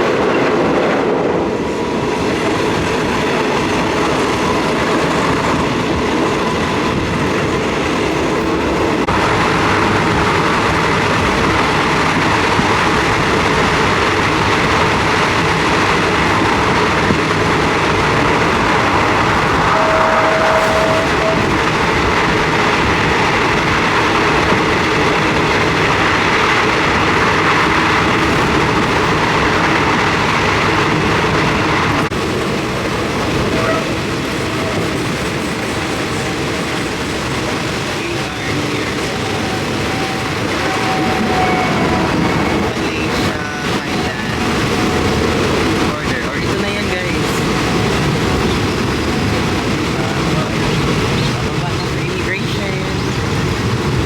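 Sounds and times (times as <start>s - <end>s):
train wheels rumbling and rattling: 0.0s - 54.0s
brief steady tone: 19.6s - 21.5s.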